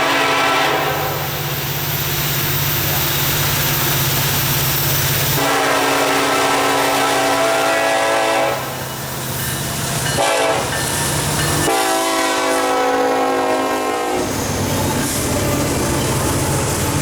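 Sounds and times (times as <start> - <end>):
locomotive air horn blasts: 0.0 - 1.3, 5.4 - 8.8, 10.2 - 10.7, 11.6 - 14.3.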